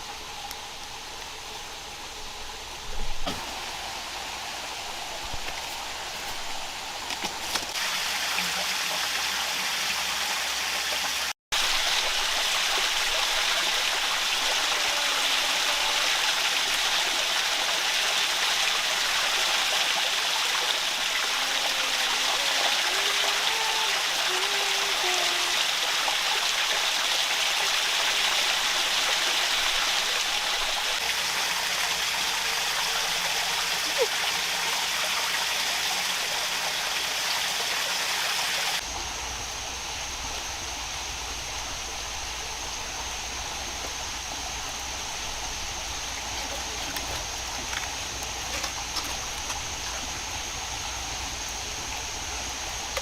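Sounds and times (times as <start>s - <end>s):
running water rushing: 0.0s - 53.0s.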